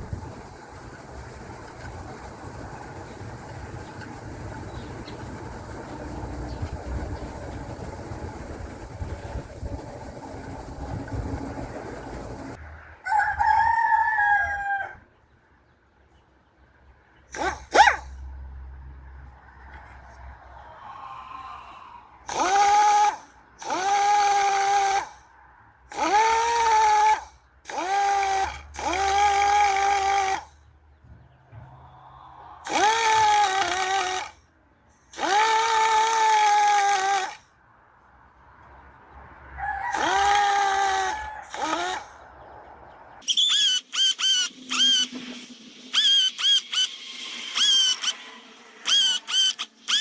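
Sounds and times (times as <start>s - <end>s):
power tool motor whining: 0.0s - 12.6s, 17.3s - 18.1s, 22.3s - 25.2s, 25.9s - 30.5s, 32.6s - 34.4s, 35.1s - 37.4s, 39.9s - 42.1s, 43.2s - 50.0s
bird calls: 3.8s - 5.4s, 42.2s - 45.2s
high bird chirps: 4.6s - 5.3s, 43.2s - 45.2s, 45.9s - 48.2s.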